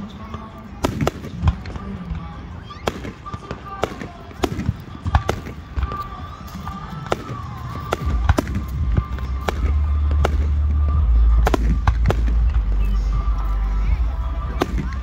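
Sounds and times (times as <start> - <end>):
fireworks bangs: 0.0 - 15.0
deep rumble: 8.0 - 15.0.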